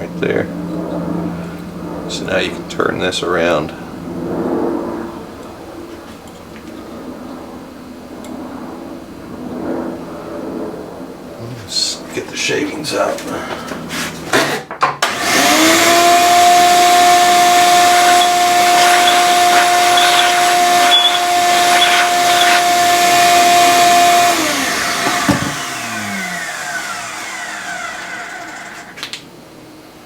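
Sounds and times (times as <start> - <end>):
vacuum cleaner whine: 12.9 - 29.2.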